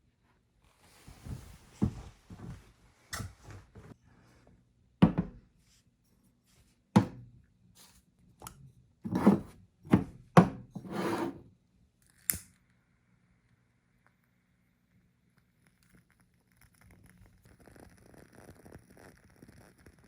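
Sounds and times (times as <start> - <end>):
objects scraping on wood: 9.1 - 9.6, 10.8 - 11.4.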